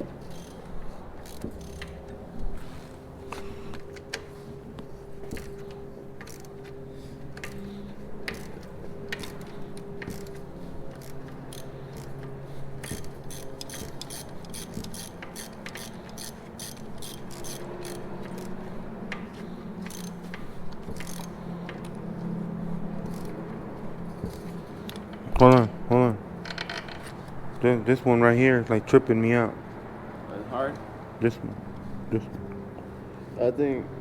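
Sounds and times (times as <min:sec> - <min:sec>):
ratchet wrench clicking: 0:00.2 - 0:02.1, 0:05.2 - 0:06.7, 0:08.3 - 0:19.2, 0:19.8 - 0:22.0, 0:23.0 - 0:23.4.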